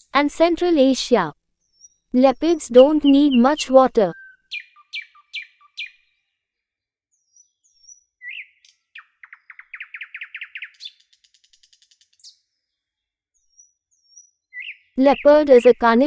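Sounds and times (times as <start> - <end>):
rapid bird trill: 1.6 - 6.4, 7.1 - 12.7, 13.4 - 15.9
small birds chirping: 1.6 - 16.0.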